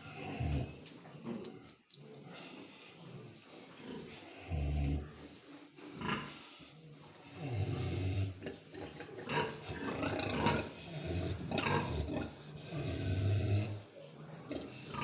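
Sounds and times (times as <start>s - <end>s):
piglets grunting: 7.3s - 13.9s.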